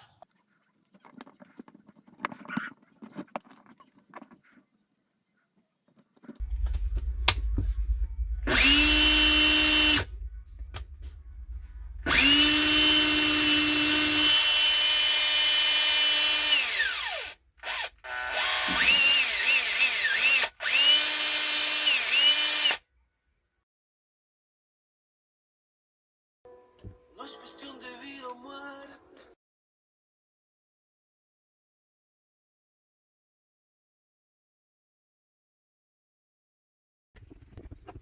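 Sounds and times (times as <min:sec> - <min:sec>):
cordless drill motor whining: 0:08.5 - 0:10.1, 0:12.1 - 0:22.8.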